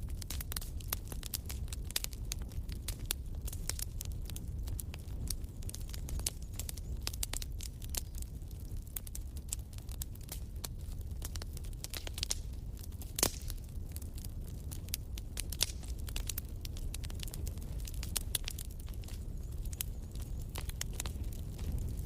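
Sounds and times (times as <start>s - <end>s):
wood fire crackling: 0.0s - 22.0s
sharp pops and snaps: 10.8s - 13.6s, 15.5s - 21.7s.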